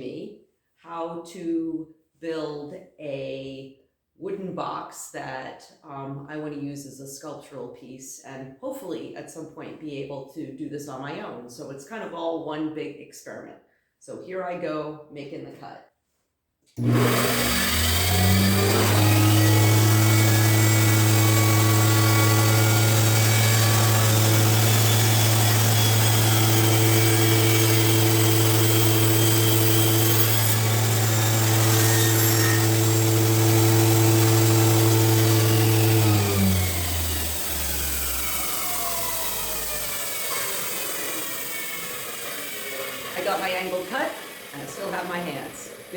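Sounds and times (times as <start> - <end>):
saw blade spinning down whine: 16.8 - 45.9
table saw running: 16.8 - 45.9.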